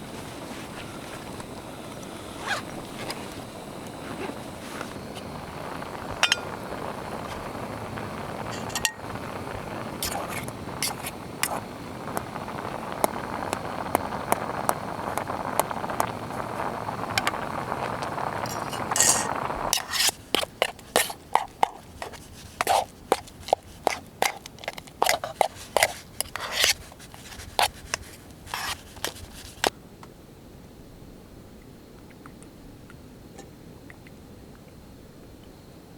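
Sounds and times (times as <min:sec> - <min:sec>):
steady hiss: 0:00.0 - 0:34.4
metal cookware clinking: 0:06.2 - 0:06.6, 0:08.6 - 0:09.0.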